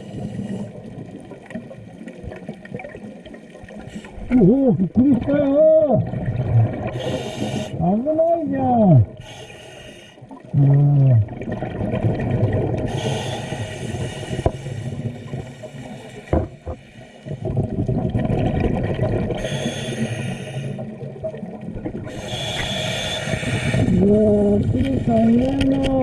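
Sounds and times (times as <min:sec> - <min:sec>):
bubbles gurgling underwater: 0:00.0 - 0:09.2, 0:10.3 - 0:13.2, 0:14.3 - 0:19.9, 0:20.8 - 0:26.0
muffled vocal sound: 0:10.6 - 0:11.3, 0:23.8 - 0:26.0.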